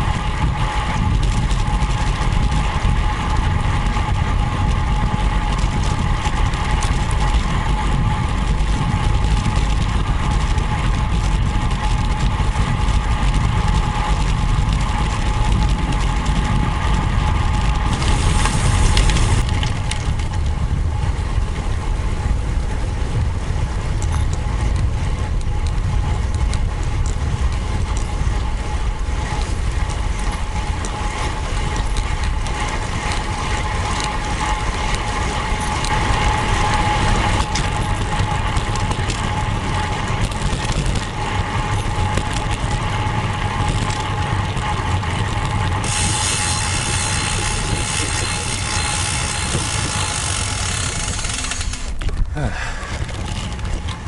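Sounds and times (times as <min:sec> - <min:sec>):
bike road noise whine: 0:00.0 - 0:54.0
wind on microphone: 0:00.0 - 0:54.0
faint bicycle ratchet ticking: 0:24.1 - 0:53.9.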